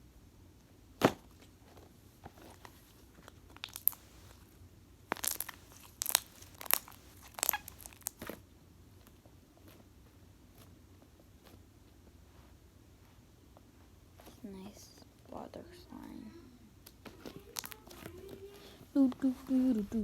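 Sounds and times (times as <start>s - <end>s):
slime clicking and popping: 3.6s - 4.1s, 5.1s - 8.3s, 16.8s - 17.9s.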